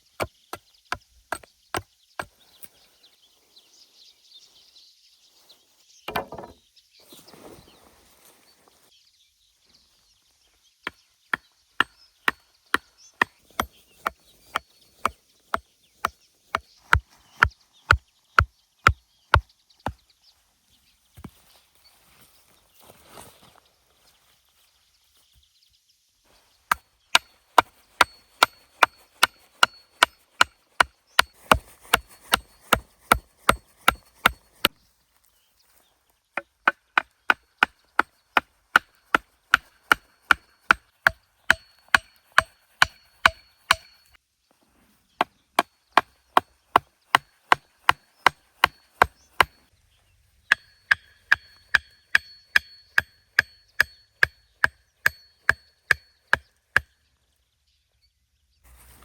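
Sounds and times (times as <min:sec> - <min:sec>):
blade chopping wood: 0:06.1 - 0:06.6, 0:26.7 - 0:34.8, 0:36.4 - 0:44.1, 0:45.6 - 0:49.6.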